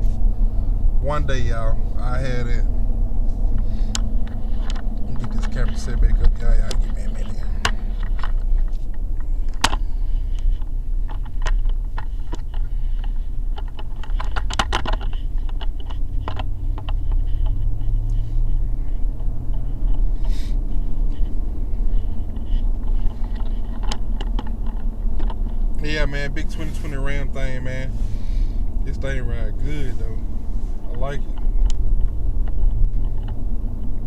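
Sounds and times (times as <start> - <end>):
road and engine rumble: 0.0 - 34.0
camera handling clicks and scrapes: 3.3 - 5.8, 6.6 - 25.7.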